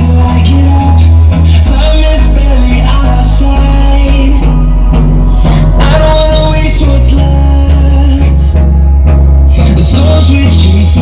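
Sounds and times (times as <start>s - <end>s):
song with heavy bass over speakers: 0.0s - 11.0s.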